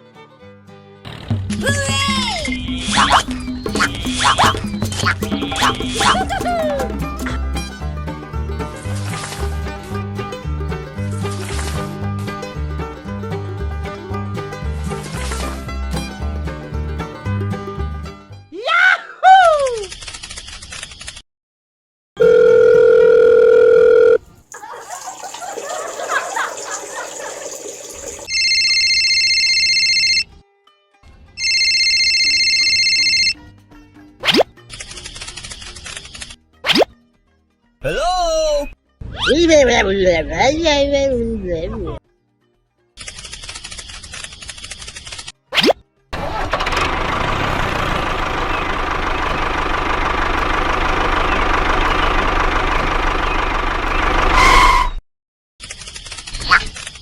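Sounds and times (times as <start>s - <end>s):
telephone ringing: 22.2s - 24.2s, 28.3s - 30.3s, 31.4s - 33.4s
engine running with knocking rattle: 46.2s - 54.4s.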